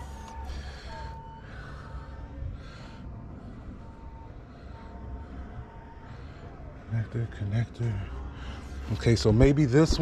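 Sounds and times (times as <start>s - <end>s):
reversing alarm beeping: 0.0s - 8.3s
close breaths: 0.0s - 9.0s
constant low rumble: 0.0s - 10.0s.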